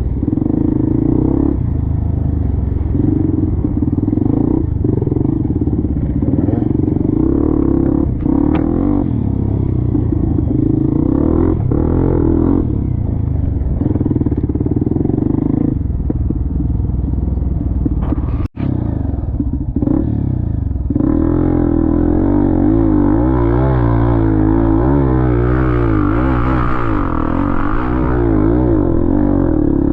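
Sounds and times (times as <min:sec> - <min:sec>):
motorcycle engine revving: 0:00.0 - 0:29.9
clatter: 0:12.6 - 0:21.1.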